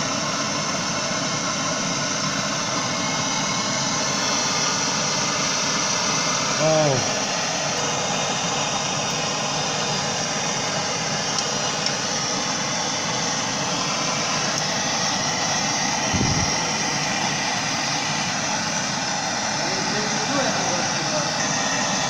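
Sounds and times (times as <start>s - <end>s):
blowtorch flame hissing: 0.0s - 22.0s
short low thump: 16.1s - 16.7s.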